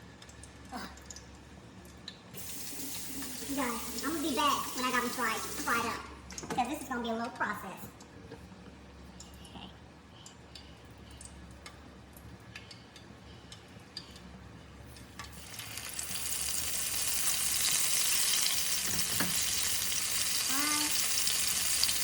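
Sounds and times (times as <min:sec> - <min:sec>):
food sizzling in deep fryer oil: 0:02.4 - 0:06.2, 0:15.2 - 0:22.0.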